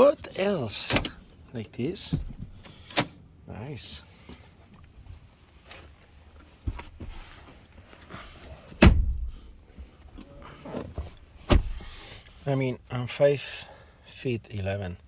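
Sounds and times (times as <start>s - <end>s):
knocks and shuffling in car: 0.0s - 12.7s
loud heavy thump: 8.8s - 9.5s, 11.4s - 11.9s.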